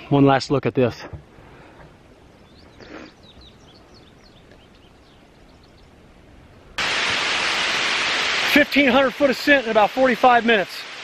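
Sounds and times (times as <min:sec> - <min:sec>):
faint birdsong chirps: 0:00.0 - 0:06.8
quiet forest background: 0:00.0 - 0:11.0.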